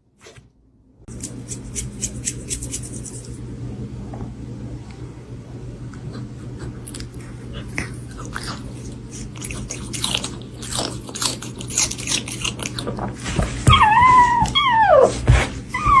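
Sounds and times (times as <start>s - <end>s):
animal chewing and crunching: 6.2s - 14.4s
animal whining calls: 13.7s - 16.0s.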